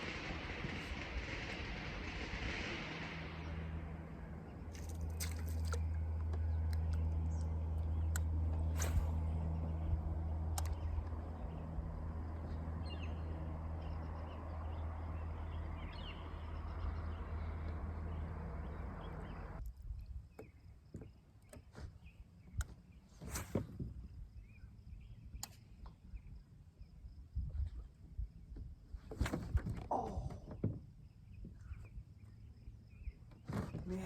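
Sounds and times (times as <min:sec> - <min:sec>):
boat motor humming: 0:00.0 - 0:19.6.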